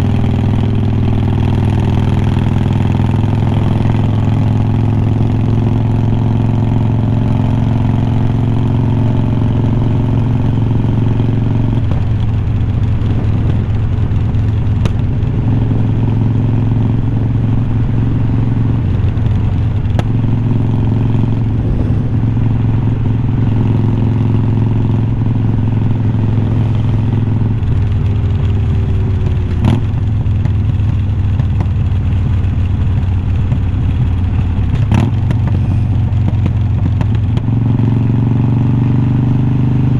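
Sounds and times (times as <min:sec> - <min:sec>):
motorcycle exhaust: 0:00.0 - 0:39.9.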